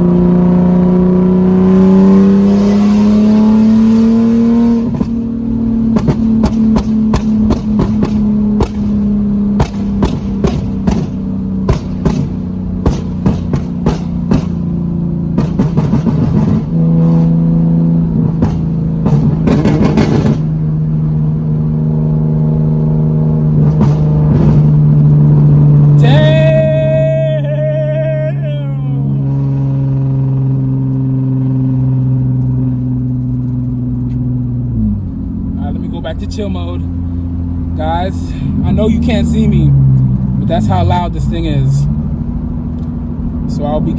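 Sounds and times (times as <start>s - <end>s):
loud engine drone: 0.0s - 15.0s, 15.6s - 31.4s, 34.8s - 43.8s
sharp exhaust pops: 4.8s - 17.4s, 18.1s - 20.7s, 23.5s - 25.9s.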